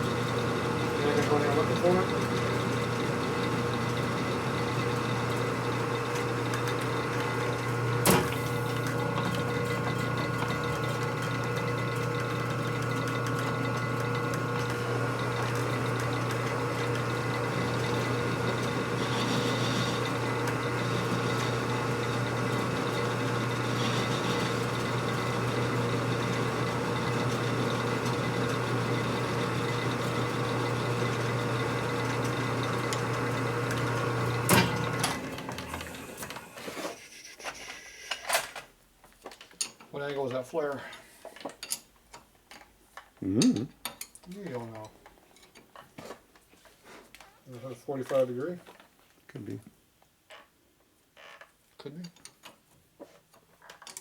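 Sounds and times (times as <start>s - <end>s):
machine motor humming: 0.0s - 36.5s.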